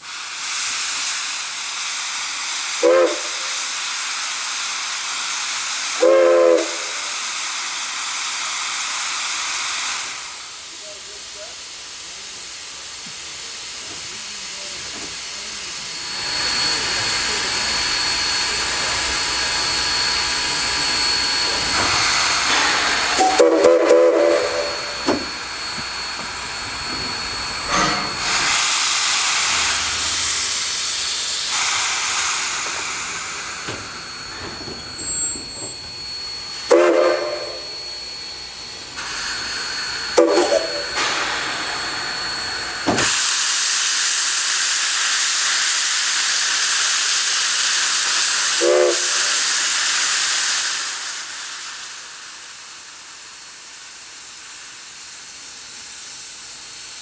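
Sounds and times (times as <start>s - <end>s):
steam locomotive hissing: 0.0s - 57.0s
steam whistle toots: 2.8s - 3.8s, 6.0s - 7.2s, 20.6s - 25.4s, 36.6s - 38.0s, 39.0s - 45.2s, 47.2s - 51.1s.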